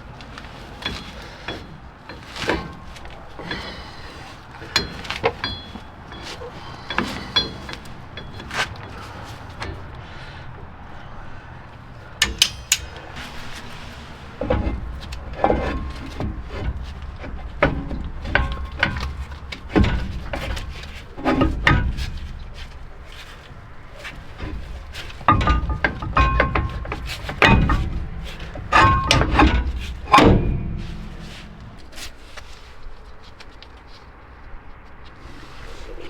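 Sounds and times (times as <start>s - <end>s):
metal tools knocking and clanking: 4.6s - 10.0s, 12.2s - 31.9s.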